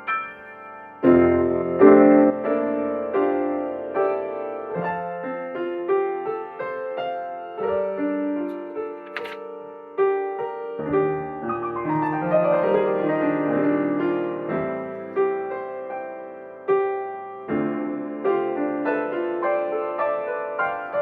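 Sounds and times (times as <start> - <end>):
slow ambient piano piece: 0.0 - 21.0
brief click: 9.0 - 9.4.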